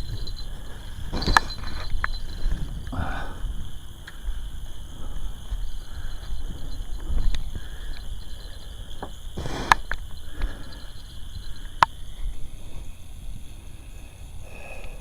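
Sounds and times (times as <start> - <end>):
short rustle: 0.0 - 3.0
wind buffeting microphone: 0.0 - 15.0
sharp clicks: 9.0 - 10.5.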